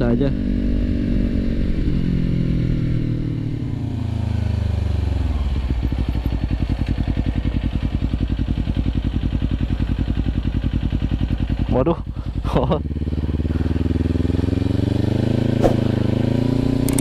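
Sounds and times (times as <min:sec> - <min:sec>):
motorcycle engine putter: 0:16.8 - 0:17.0.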